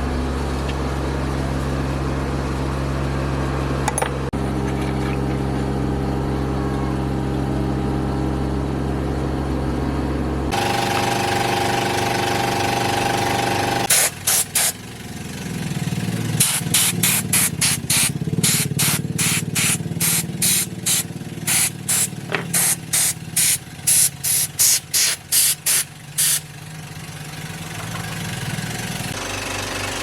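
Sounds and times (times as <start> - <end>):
low machine hum: 0.0 - 13.9
compressed air spray bursts: 13.9 - 14.8, 16.4 - 26.5.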